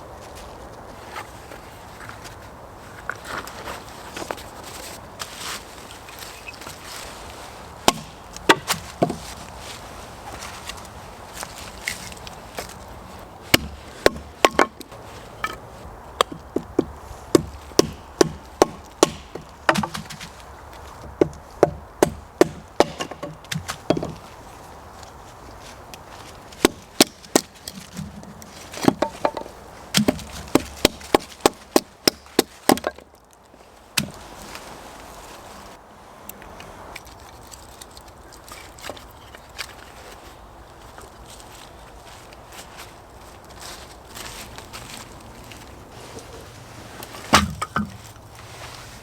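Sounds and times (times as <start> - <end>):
wood chopping strikes: 7.8 - 9.3, 13.5 - 15.6, 16.2 - 20.4, 21.0 - 24.2, 26.5 - 33.2, 34.0 - 34.2, 47.2 - 48.0.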